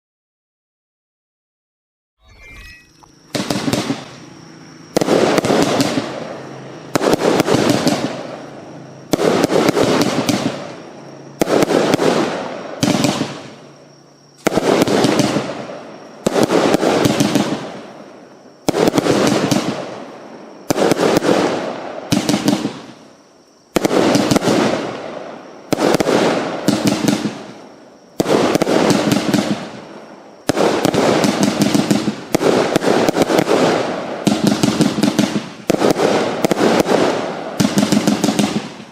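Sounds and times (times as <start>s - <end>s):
firework bangs with crackle: 3.3s - 38.9s.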